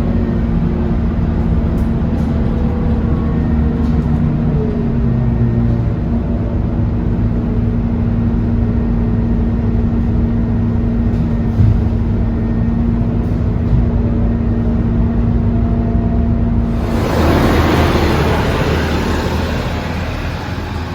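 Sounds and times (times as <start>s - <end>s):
bus engine rumble: 0.0s - 20.9s
steady hum: 0.0s - 20.9s
air hissing: 16.7s - 20.9s.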